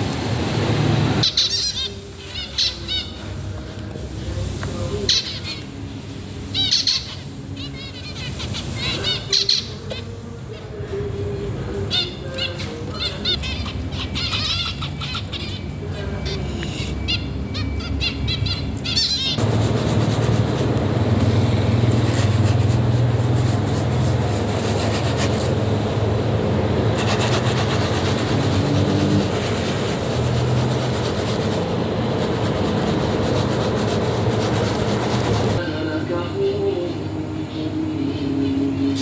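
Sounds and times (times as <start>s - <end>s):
birds chirping: 1.1s - 3.5s, 4.8s - 39.0s
mechanical rumble with low hum: 12.7s - 39.0s.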